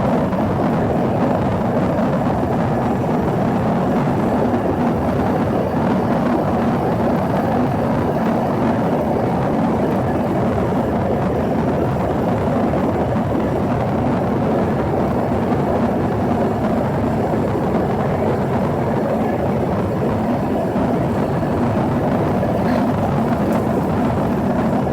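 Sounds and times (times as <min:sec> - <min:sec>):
faint steady hum: 0:00.0 - 0:24.9
jet engines droning: 0:00.0 - 0:24.9
airflow rushing: 0:19.5 - 0:24.9.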